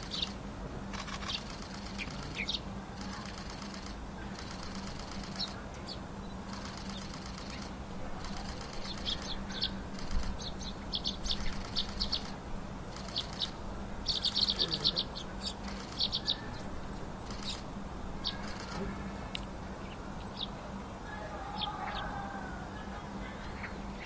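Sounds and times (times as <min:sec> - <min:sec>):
wings fluttering: 0:00.0 - 0:05.6, 0:06.5 - 0:19.4
faint low hum: 0:00.0 - 0:24.0
songbirds chirping: 0:00.0 - 0:24.0.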